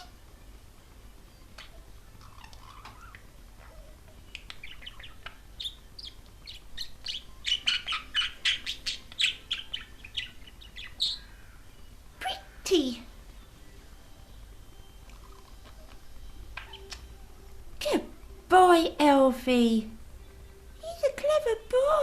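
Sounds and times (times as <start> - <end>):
budgerigar chattering: 1.6 - 11.6, 16.5 - 17.1.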